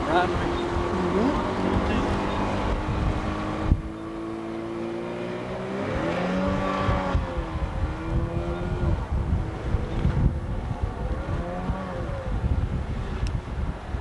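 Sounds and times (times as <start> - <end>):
outboard motor running: 0.0 - 5.6
wind rumble on microphone: 0.0 - 14.0.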